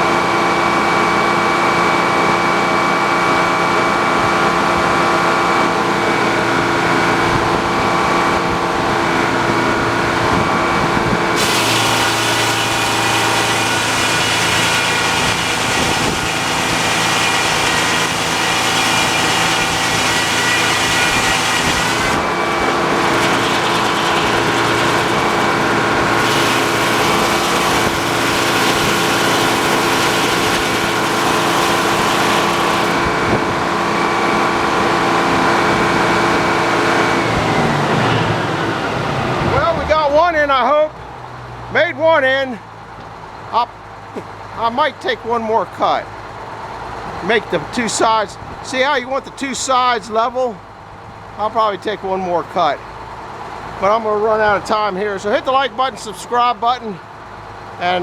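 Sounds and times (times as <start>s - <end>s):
sawmill engine running: 0.0s - 40.0s
saw blade cutting log: 11.4s - 33.4s.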